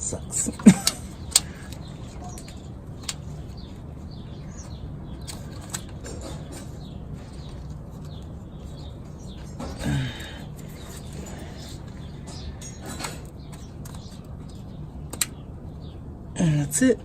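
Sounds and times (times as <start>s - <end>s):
steady low hum: 0.0s - 17.0s
sharp clicks: 12.3s - 15.4s.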